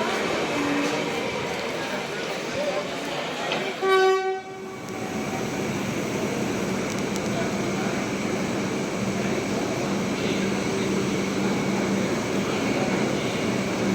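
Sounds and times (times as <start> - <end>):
train rumbling past: 0.0 - 13.9
train horn blast: 3.8 - 4.8.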